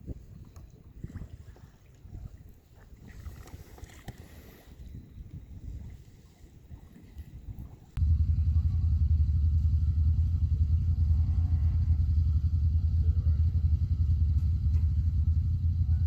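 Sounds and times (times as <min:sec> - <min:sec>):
low engine rumble: 0:07.5 - 0:16.0.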